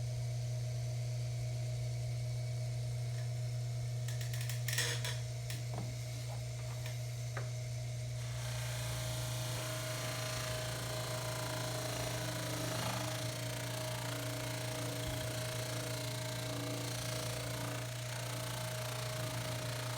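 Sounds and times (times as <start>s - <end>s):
lathe motor hum: 8.2s - 19.9s.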